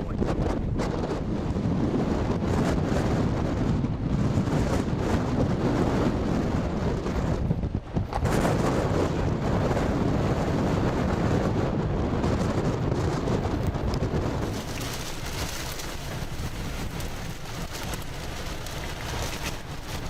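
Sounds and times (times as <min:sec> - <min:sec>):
wind noise on microphone: 0:00.0 - 0:20.0
rain drops ticking: 0:13.9 - 0:20.0
heavy rain: 0:14.4 - 0:20.0.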